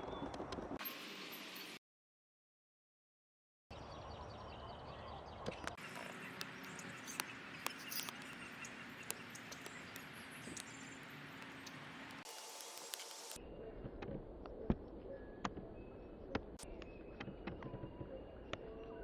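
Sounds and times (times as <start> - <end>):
bird chirps: 3.7 - 13.7, 15.1 - 19.0
faint outdoor ambience: 3.7 - 19.0.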